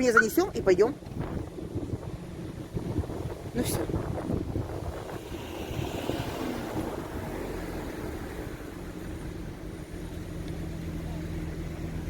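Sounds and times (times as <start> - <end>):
wind rumble on microphone: 0.0 - 9.5
vehicle engine hum: 0.0 - 12.0.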